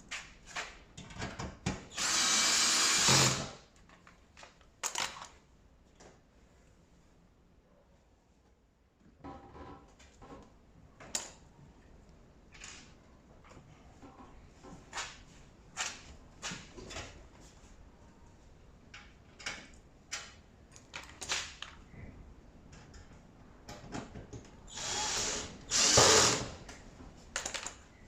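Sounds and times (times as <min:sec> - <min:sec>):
power drill running: 0:02.0 - 0:03.6, 0:24.7 - 0:26.6
clicks and knocks of tools: 0:03.8 - 0:05.4, 0:18.9 - 0:21.9, 0:26.7 - 0:27.8.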